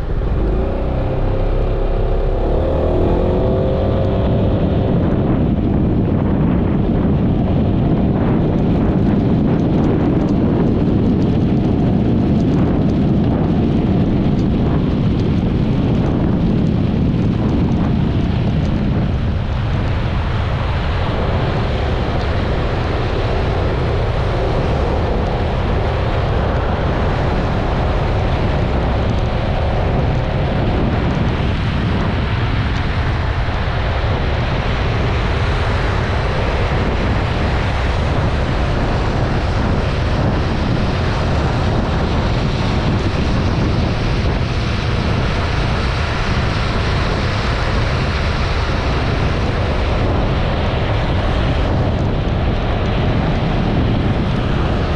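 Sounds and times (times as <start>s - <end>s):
scooter engine: 0.0s - 5.3s
wind rushing over microphone: 0.0s - 54.9s.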